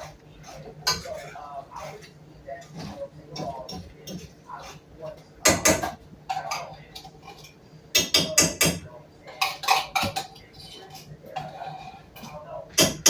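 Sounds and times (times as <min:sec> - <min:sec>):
utensil clanking against pot: 0:05.4 - 0:13.0.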